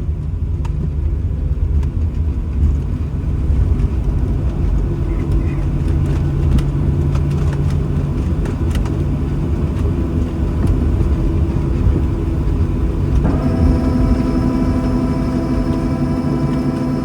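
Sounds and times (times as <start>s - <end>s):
aircraft cabin rumble: 0.0s - 17.0s
steady tones: 13.2s - 17.0s.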